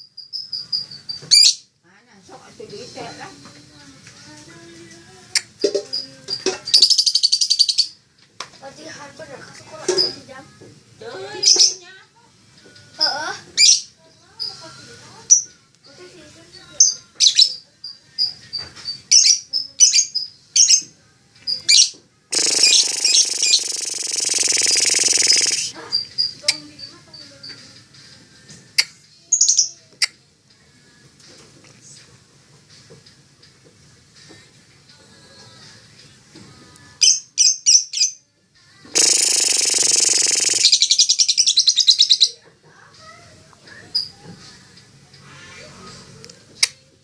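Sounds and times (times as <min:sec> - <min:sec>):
lovebird chirping: 0:00.0 - 0:01.6, 0:05.9 - 0:08.0, 0:21.5 - 0:27.0, 0:39.0 - 0:42.4.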